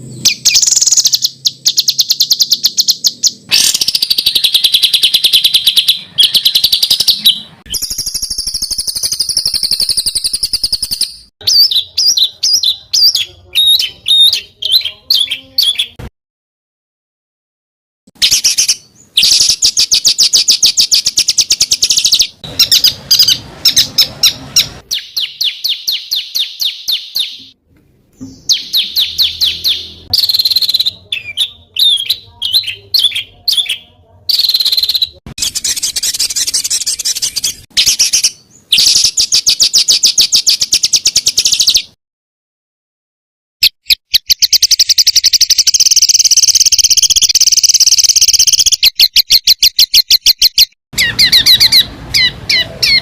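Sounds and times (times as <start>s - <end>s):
songbirds harsh rapid song: 0.0s - 16.0s, 18.2s - 42.0s, 51.0s - 53.0s.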